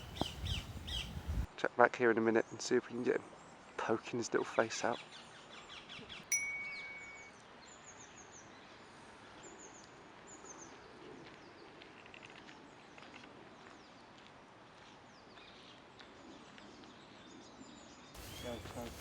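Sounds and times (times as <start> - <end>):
small birds calling: 0.0 - 1.5, 18.2 - 19.0
faint outdoor ambience: 0.0 - 19.0
bell-like ding: 6.3 - 7.4.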